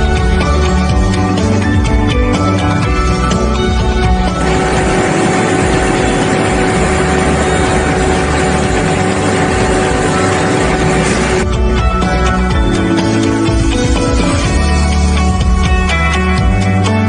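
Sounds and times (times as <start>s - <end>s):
machine whirring: 4.4s - 11.4s.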